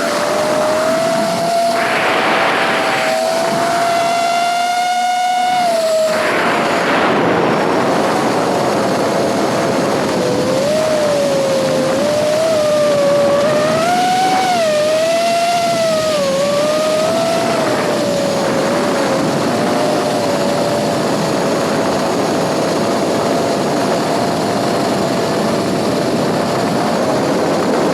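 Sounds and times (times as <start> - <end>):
drone propellers whining: 0.0 - 27.9
wind rush: 0.0 - 27.9.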